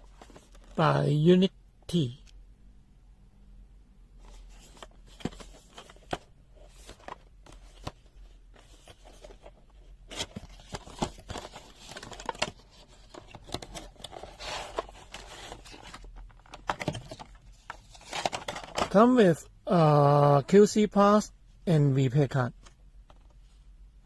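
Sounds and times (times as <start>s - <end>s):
packaging rustling and crinkling: 4.3s - 19.0s.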